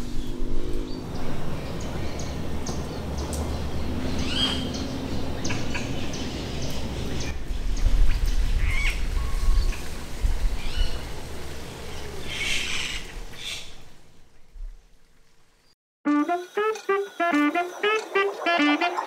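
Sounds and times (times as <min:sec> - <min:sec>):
birds chirping and squawking: 0:00.0 - 0:09.0, 0:16.6 - 0:19.0.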